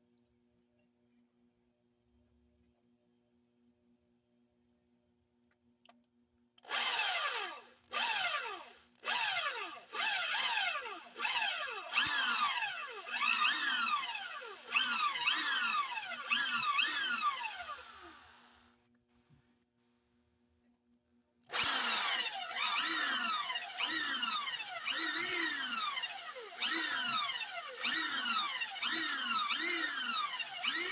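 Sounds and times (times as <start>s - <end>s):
electric drill drilling into steel: 6.7s - 18.7s, 21.5s - 30.9s.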